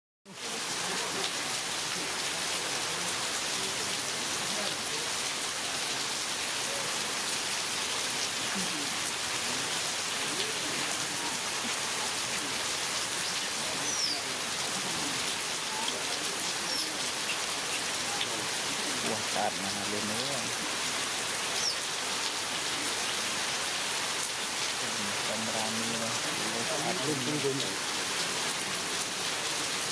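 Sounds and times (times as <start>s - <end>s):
heavy rain falling: 0.3s - 29.9s
faint high-pitched calls: 13.2s - 14.4s, 21.5s - 21.9s.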